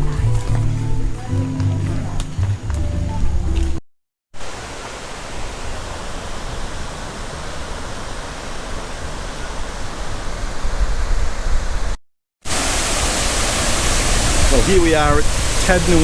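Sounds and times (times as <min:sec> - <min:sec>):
waterfall rushing: 0:04.4 - 0:10.8, 0:12.5 - 0:16.0.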